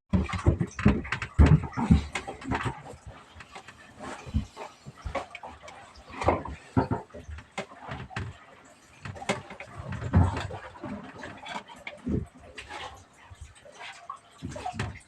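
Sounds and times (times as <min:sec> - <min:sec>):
knocks bumps and rattles: 0:00.1 - 0:08.4, 0:09.0 - 0:12.4, 0:14.4 - 0:15.0.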